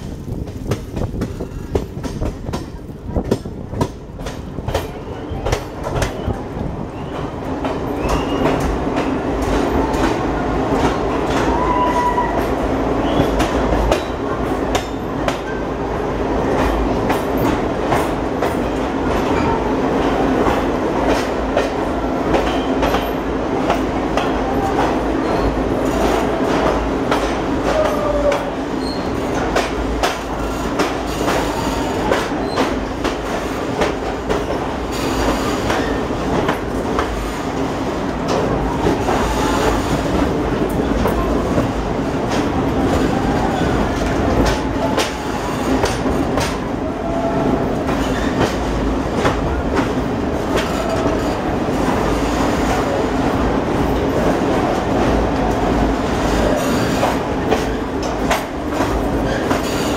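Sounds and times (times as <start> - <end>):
train wheels clicking over rail joints: 0.0 - 12.2, 16.5 - 46.8, 47.6 - 59.9
train wheel squeals: 7.9 - 8.7, 25.2 - 26.0, 28.2 - 29.4, 30.4 - 32.8, 34.9 - 36.1, 56.2 - 57.9, 59.1 - 59.9.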